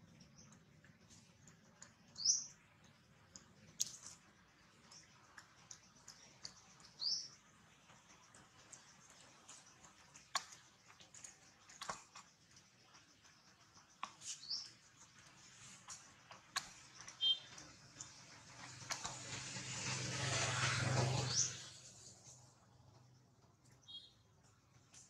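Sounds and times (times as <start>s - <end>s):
faint high bird chirps: 2.1s - 2.6s, 17.0s - 18.1s, 23.6s - 24.3s.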